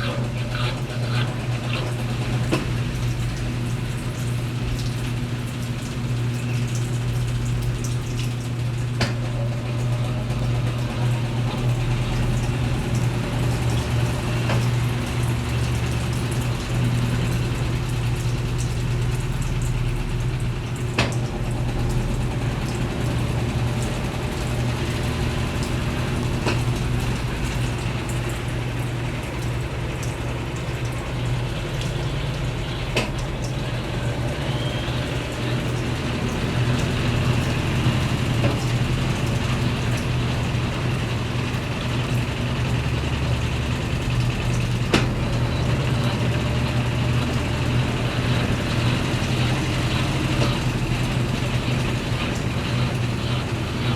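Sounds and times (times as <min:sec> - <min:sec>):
washing machine motor hum: 0:00.0 - 0:53.9.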